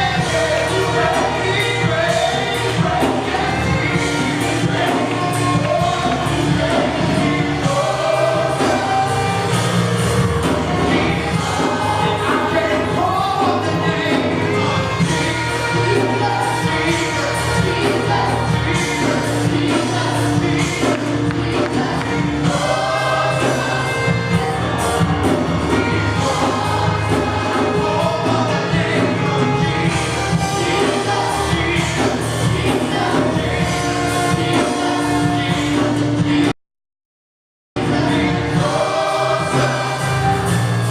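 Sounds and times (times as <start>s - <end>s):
band playing: 0.0s - 36.5s, 37.8s - 40.9s
group singing gospel song: 0.0s - 36.5s, 37.8s - 40.9s.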